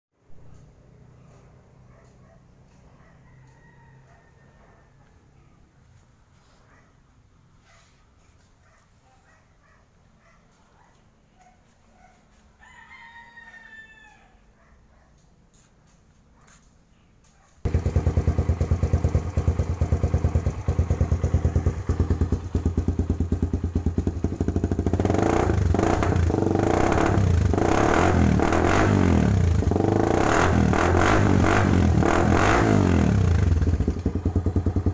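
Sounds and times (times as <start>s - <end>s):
motorcycle engine revving: 17.6s - 34.9s.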